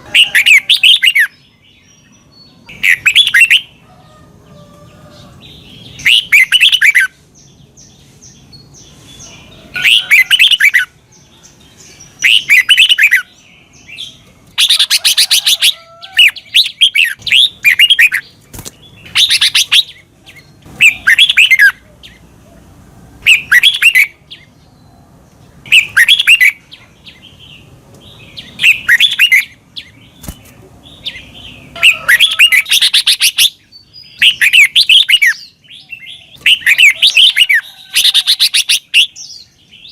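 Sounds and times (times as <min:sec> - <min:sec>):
bird singing bubbling phrases: 0:00.0 - 0:03.8, 0:05.8 - 0:07.1, 0:12.2 - 0:18.4, 0:19.0 - 0:24.5, 0:25.6 - 0:27.7, 0:28.4 - 0:39.9.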